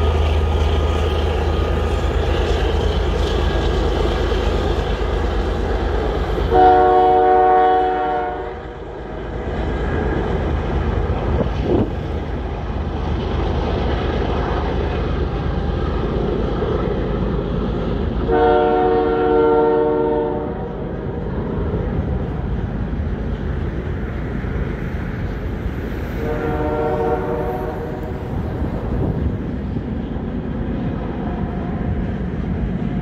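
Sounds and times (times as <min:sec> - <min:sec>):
freight train rumbling past: 0:00.0 - 0:33.0
train horn chord: 0:06.5 - 0:08.7, 0:18.2 - 0:20.8, 0:26.2 - 0:28.2.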